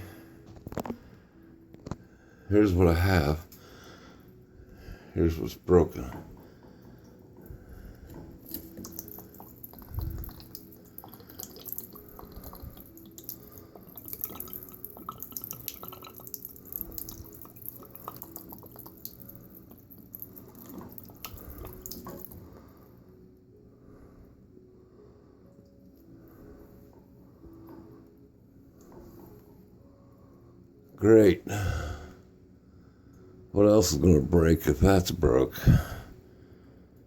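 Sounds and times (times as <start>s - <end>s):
water dripping and splashing: 5.9s - 22.5s
faint hiss of leaking water: 8.1s - 22.5s.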